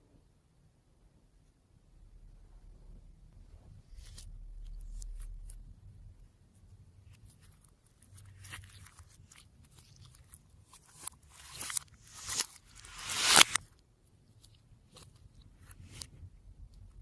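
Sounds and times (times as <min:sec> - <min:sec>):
hands working slime: 0:03.5 - 0:17.0.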